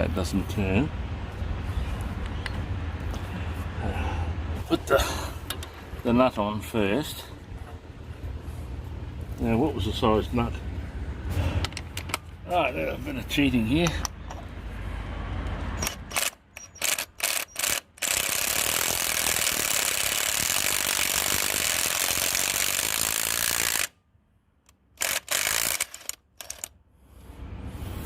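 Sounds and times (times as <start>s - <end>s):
ratchet wrench clicking: 15.8s - 23.9s, 24.7s - 26.7s.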